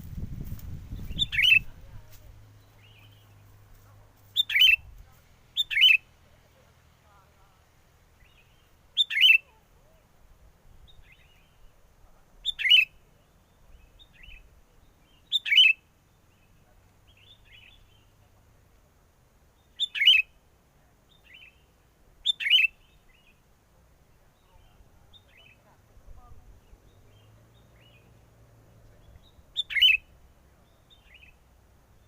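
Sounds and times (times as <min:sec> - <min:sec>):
bulbul chattering calls: 0:00.9 - 0:03.5, 0:04.3 - 0:04.9, 0:05.5 - 0:06.1, 0:08.2 - 0:09.6, 0:12.4 - 0:18.2, 0:19.6 - 0:20.4, 0:21.1 - 0:23.4, 0:29.0 - 0:31.4
distant bulbul calls: 0:00.9 - 0:07.3, 0:08.1 - 0:10.1, 0:10.8 - 0:18.4, 0:19.5 - 0:32.0.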